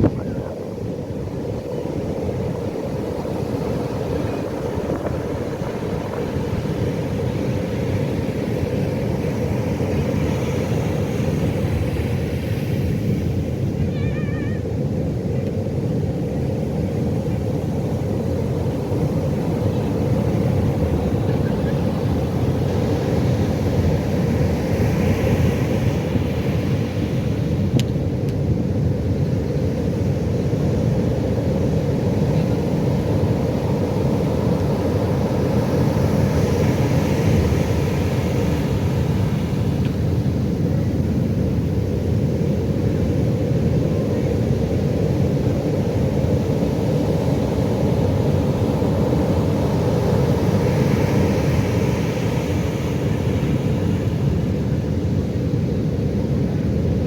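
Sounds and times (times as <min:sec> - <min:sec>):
wave breaking: 0:00.0 - 0:01.2
ocean waves rumbling: 0:00.0 - 0:57.0.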